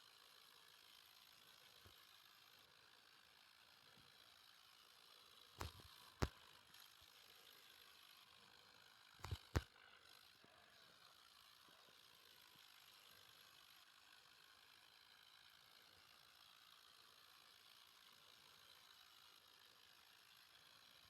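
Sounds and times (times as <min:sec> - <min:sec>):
sharp clicks: 0:05.6 - 0:06.3, 0:09.2 - 0:09.6.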